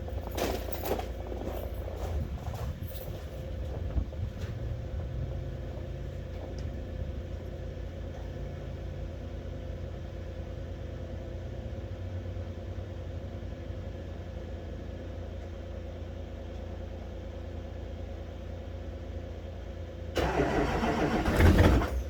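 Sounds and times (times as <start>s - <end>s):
diesel engine idling: 0.0s - 13.4s, 18.7s - 22.0s.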